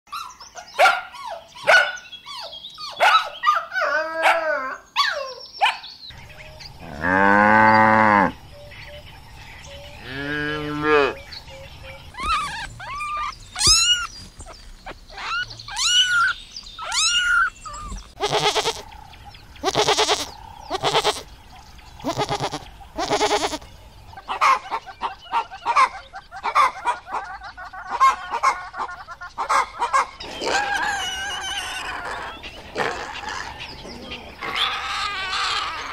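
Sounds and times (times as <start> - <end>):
farmyard fowl calling: 9.9 - 19.0, 19.6 - 21.3, 22.0 - 35.9
broad animal calls: 12.0 - 21.3, 22.0 - 35.9
kittens meowing: 12.1 - 18.8, 19.6 - 21.3, 22.0 - 23.6, 30.4 - 35.9
puppies yelping and whimpering: 12.1 - 18.8, 24.4 - 35.9
long drawn-out animal calls: 15.1 - 18.9, 19.6 - 21.3, 22.0 - 23.6, 30.2 - 35.9.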